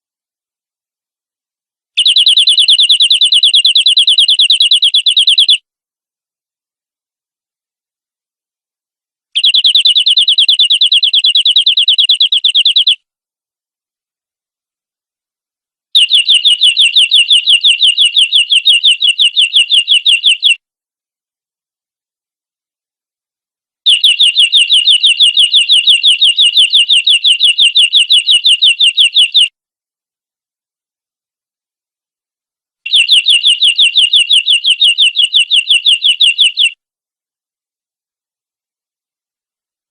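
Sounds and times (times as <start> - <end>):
canary singing rapid trill: 2.0 - 5.6, 9.4 - 13.0, 16.0 - 20.6, 23.9 - 29.5, 32.9 - 36.8.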